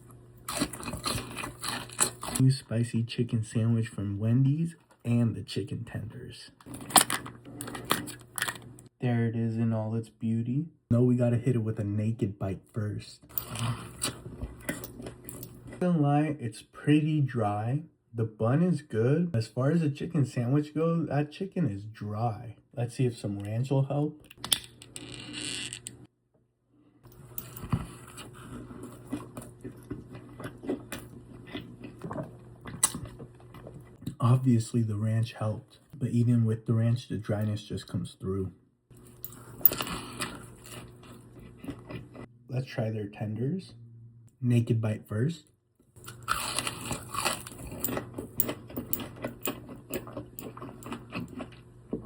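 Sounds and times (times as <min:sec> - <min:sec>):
person chewing crunchy food: 0:00.0 - 0:02.4, 0:13.4 - 0:15.8, 0:27.1 - 0:34.0, 0:39.0 - 0:42.3, 0:46.0 - 0:52.0
low steady hum: 0:00.0 - 0:26.1, 0:27.0 - 0:52.0.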